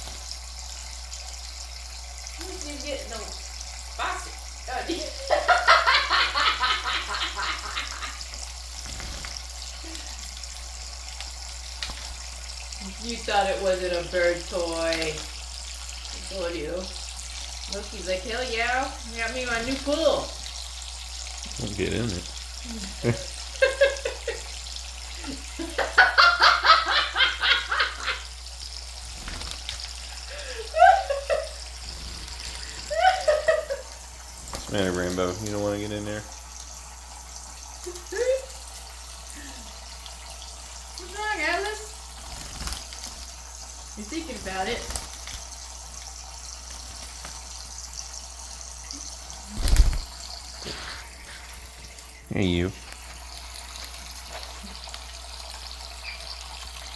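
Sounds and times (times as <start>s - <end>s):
running water hiss: 0.0s - 56.9s
person laughing: 5.2s - 8.2s, 22.7s - 24.5s, 25.2s - 28.3s, 30.3s - 31.6s, 32.8s - 33.9s.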